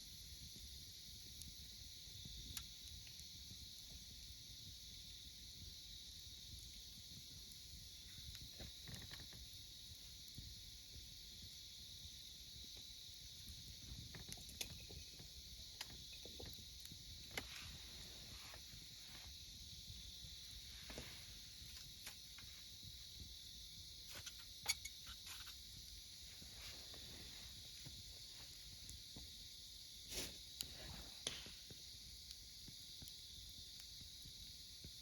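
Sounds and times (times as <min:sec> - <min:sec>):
insects chirping: 0:00.0 - 0:35.0
wood fire crackling and popping: 0:00.1 - 0:35.0.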